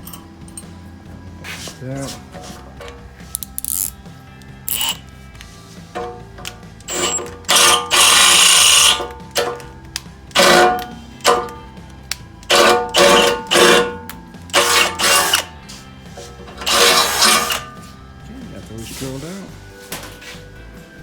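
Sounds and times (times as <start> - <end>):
background music: 0.0 - 21.0
power drill drilling: 4.7 - 5.0, 6.8 - 9.6, 10.3 - 11.6, 12.5 - 15.6, 16.6 - 17.8.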